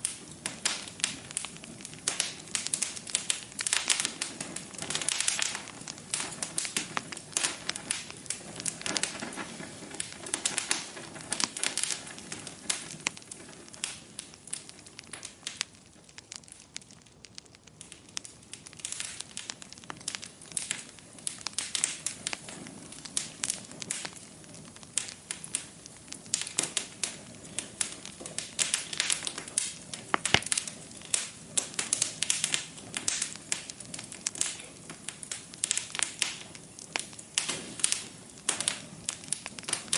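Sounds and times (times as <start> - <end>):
log fire crackling: 0.0 - 39.9
soft hiss of fire: 0.0 - 39.9.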